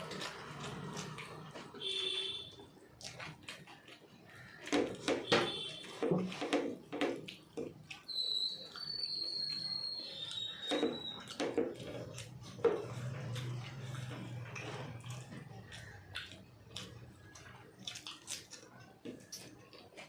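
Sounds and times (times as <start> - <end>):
chewing and clicking noises: 0.0 - 20.0
high whistle-like tone: 8.1 - 11.3.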